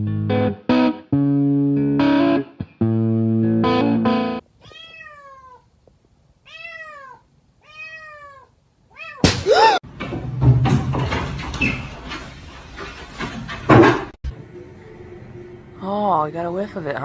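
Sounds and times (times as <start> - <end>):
cat meowing: 4.6 - 5.6, 6.5 - 9.8
harsh cat cry: 6.5 - 9.8.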